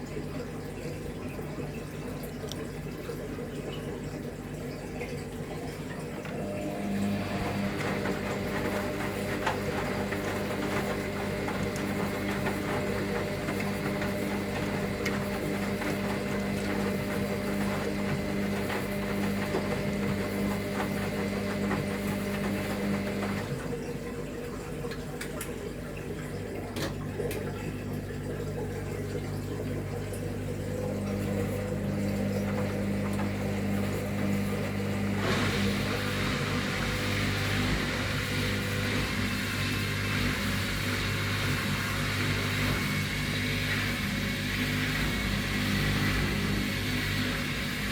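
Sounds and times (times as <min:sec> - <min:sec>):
drain pump humming: 0:00.0 - 0:47.9.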